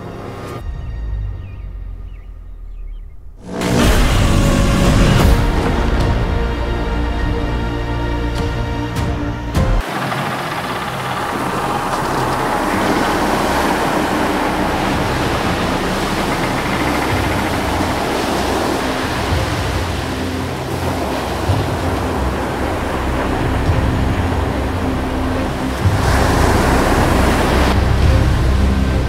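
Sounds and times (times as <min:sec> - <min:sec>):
loud steady rushing noise: 0:03.4 - 0:08.2, 0:09.7 - 0:29.0.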